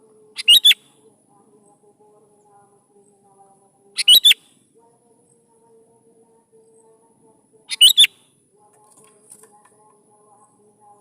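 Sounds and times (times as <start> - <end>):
faint steady hum: 0.0 - 11.0
bird whistled song: 0.4 - 0.9, 4.0 - 4.5, 7.7 - 8.2.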